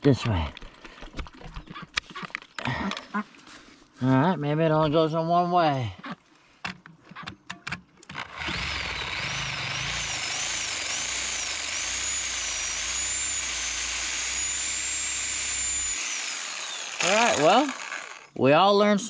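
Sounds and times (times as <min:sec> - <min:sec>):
reciprocating saw motor whine: 0:08.2 - 0:18.4.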